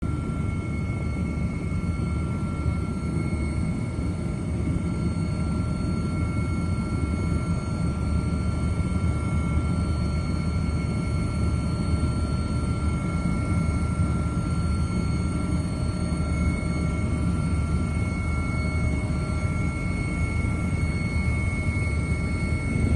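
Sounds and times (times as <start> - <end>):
low rumble: 22.5 - 22.9.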